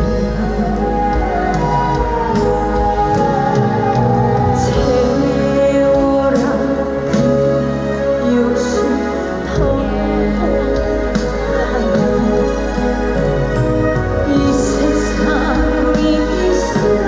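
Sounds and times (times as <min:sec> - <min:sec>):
band backing track: 0:00.0 - 0:17.0
woman singing a slow song: 0:00.0 - 0:17.0.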